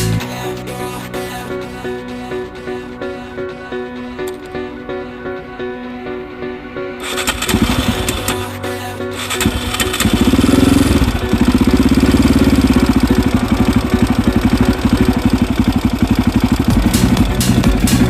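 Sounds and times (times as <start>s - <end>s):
motorcycle engine starting and idling: 7.0s - 8.4s, 9.2s - 18.0s.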